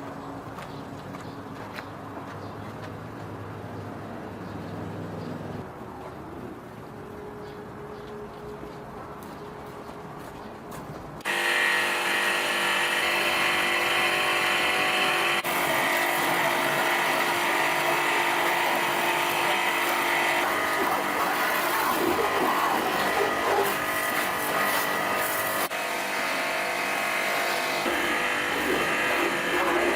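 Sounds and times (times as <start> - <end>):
motor running steadily: 11.2 - 29.9.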